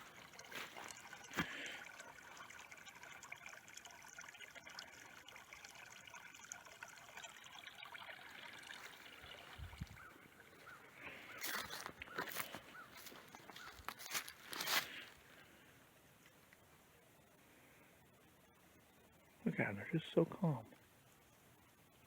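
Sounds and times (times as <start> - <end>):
trickle of running water: 0.0 - 15.4.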